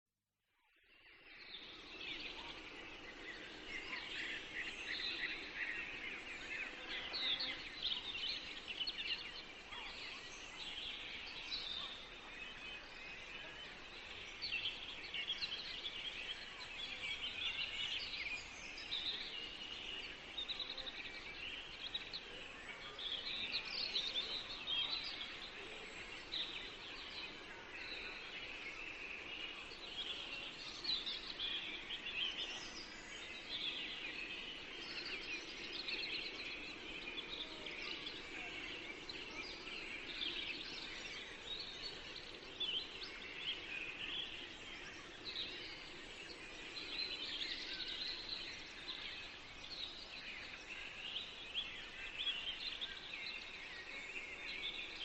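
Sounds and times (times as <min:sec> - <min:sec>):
faint background hiss: 0:00.6 - 0:55.0
songbirds chirping: 0:00.6 - 0:55.0.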